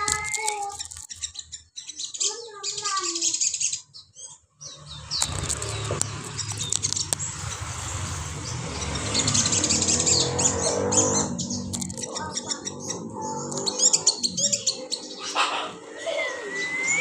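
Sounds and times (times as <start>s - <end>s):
small songbird chirping: 0.0s - 15.5s.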